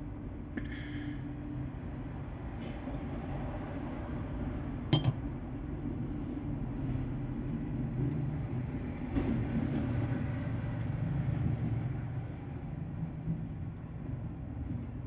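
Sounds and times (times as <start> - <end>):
noisy clatter: 8.9 - 12.1.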